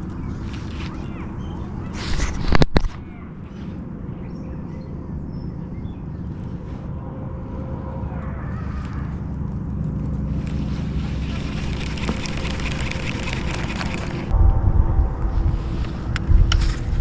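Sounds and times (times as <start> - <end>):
crackling rustle: 0.0 - 3.0, 8.8 - 14.3
wind buffeting microphone: 8.8 - 17.0.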